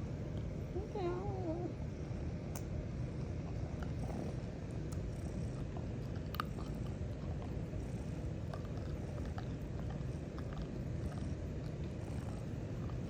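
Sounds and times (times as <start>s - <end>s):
cat purring loudly: 3.3s - 13.0s.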